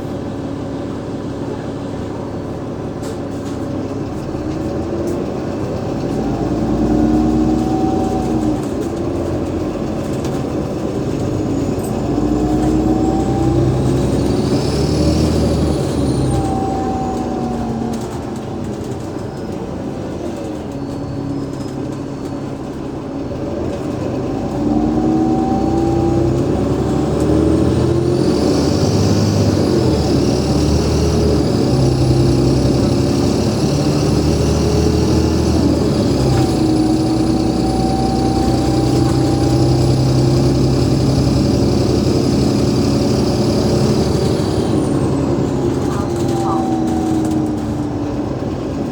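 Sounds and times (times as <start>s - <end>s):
bus diesel engine accelerating: 0.0s - 48.9s
high gearbox whine: 24.4s - 48.5s.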